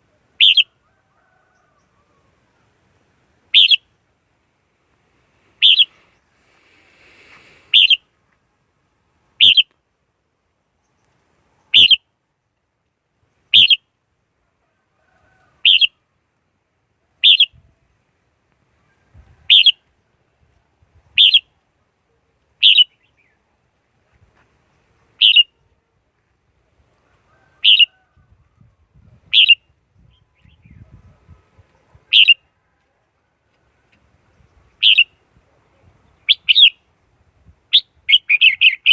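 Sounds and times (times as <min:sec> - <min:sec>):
bird sharp call notes: 0:00.4 - 0:00.7, 0:03.5 - 0:03.9, 0:05.6 - 0:06.0, 0:07.1 - 0:08.0, 0:09.4 - 0:09.7, 0:11.7 - 0:12.0, 0:15.6 - 0:16.0, 0:17.2 - 0:17.5, 0:22.6 - 0:23.3, 0:25.2 - 0:25.5, 0:27.6 - 0:28.0, 0:32.1 - 0:32.4, 0:34.8 - 0:35.2, 0:37.7 - 0:38.9.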